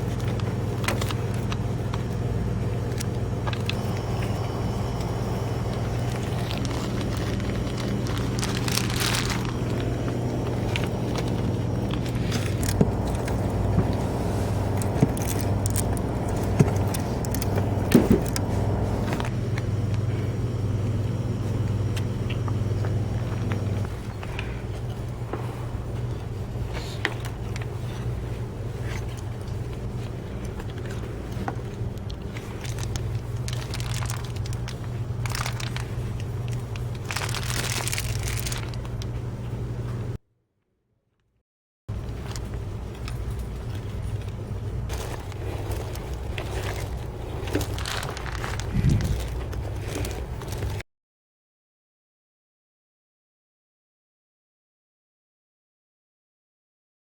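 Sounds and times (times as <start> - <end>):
crinkling handling noise: 0.0 - 40.2, 41.9 - 50.8
steady low hum: 0.0 - 40.2, 41.9 - 50.8
car engine and road hum: 3.4 - 19.5
rustles: 4.8 - 19.3, 41.9 - 50.8
small rattles: 41.9 - 50.8.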